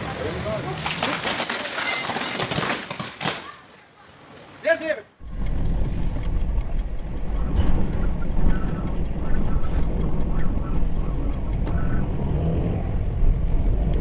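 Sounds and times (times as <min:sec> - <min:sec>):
strong wind gusts buffeting microphone: 0:05.2 - 0:12.2.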